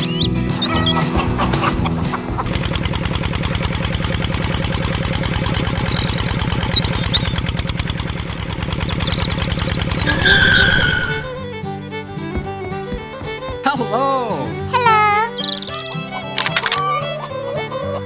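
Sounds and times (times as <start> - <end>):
small engine chugging: 1.5 - 10.0
birds chirping: 15.2 - 16.9.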